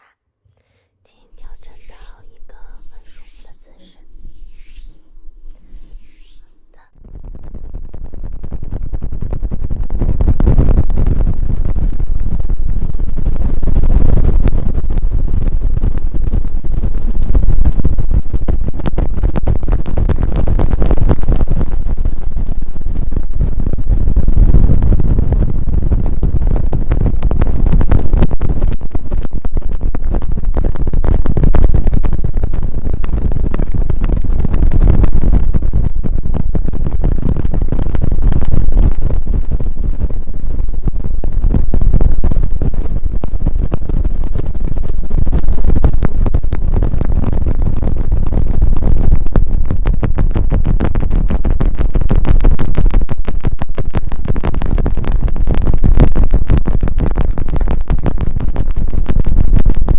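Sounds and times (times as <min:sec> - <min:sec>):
brushes swept against microphone: 0:01.2 - 0:06.9, 0:16.8 - 0:18.3.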